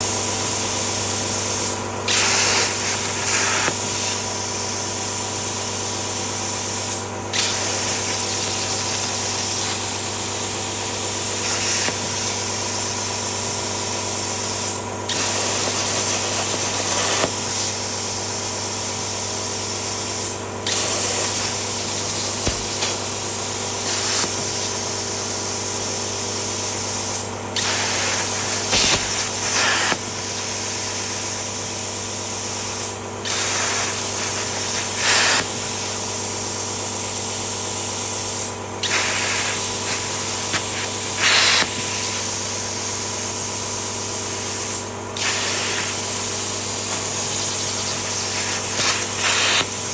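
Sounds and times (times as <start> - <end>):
electrical hum: 0.0 - 49.9
plasma torch hissing: 0.0 - 49.9.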